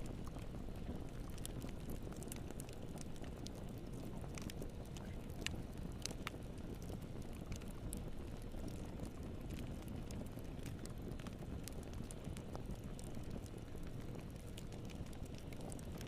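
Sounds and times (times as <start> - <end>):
fire crackles and pops: 0.0 - 16.0
fire low rumble: 0.0 - 16.0.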